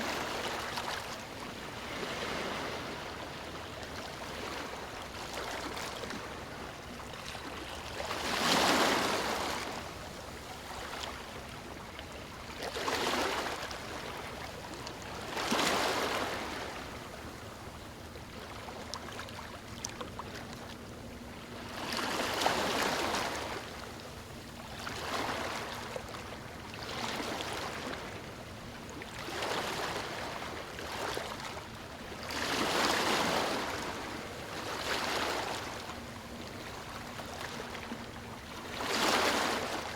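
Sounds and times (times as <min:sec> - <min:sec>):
waves breaking on stony shore: 0:00.0 - 0:03.3, 0:07.5 - 0:09.8, 0:12.6 - 0:14.2, 0:15.3 - 0:16.8, 0:32.3 - 0:35.7, 0:38.6 - 0:39.9
steady wash of water: 0:00.0 - 0:20.8, 0:21.4 - 0:39.9.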